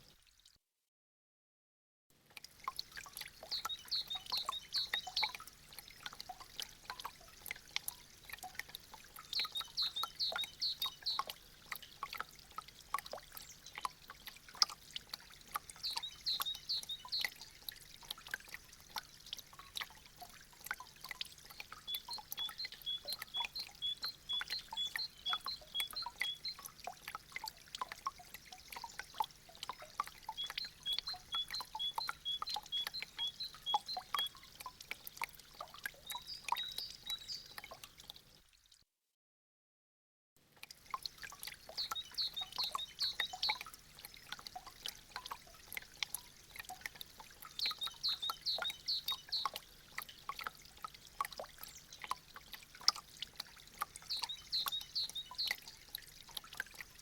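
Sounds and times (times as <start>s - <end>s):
meltwater dripping and trickling: 0.0s - 0.5s, 2.2s - 38.8s, 40.4s - 57.0s
high chirping calls: 3.5s - 5.3s, 9.4s - 11.2s, 21.9s - 26.6s, 30.3s - 34.4s, 36.1s - 37.6s, 41.8s - 43.6s, 47.6s - 49.6s, 54.1s - 55.5s.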